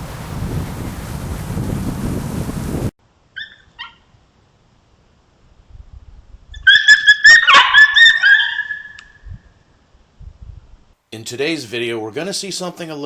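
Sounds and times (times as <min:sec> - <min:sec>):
coyotes yelping and yipping: 0:03.4 - 0:04.1, 0:06.6 - 0:09.2.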